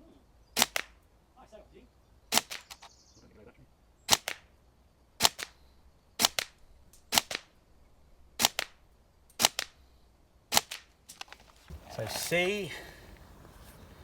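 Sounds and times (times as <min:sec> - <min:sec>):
airsoft gun shots: 0:00.6 - 0:01.0, 0:02.3 - 0:02.9, 0:04.1 - 0:04.5, 0:05.2 - 0:05.6, 0:06.2 - 0:07.5, 0:08.4 - 0:08.8, 0:09.4 - 0:09.8, 0:10.5 - 0:10.9.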